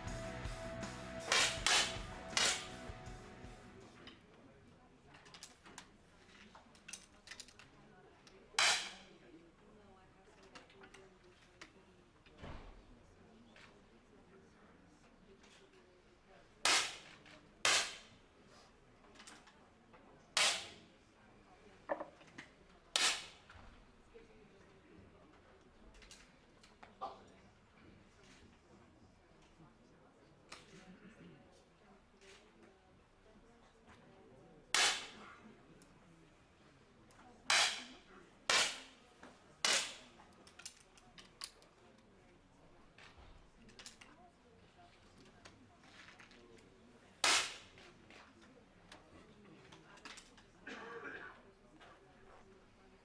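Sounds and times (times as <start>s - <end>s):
air pistol shots: 1.3s - 2.8s.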